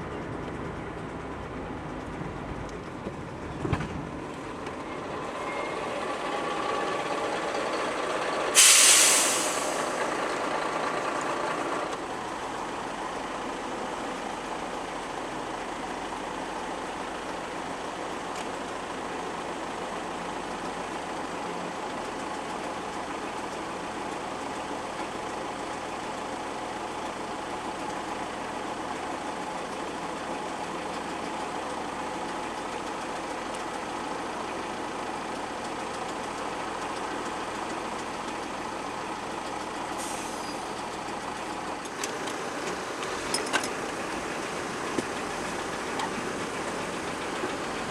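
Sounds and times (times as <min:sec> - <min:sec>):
vehicle engine and road noise: 0:00.0 - 0:47.9
loud hiss: 0:08.6 - 0:10.2.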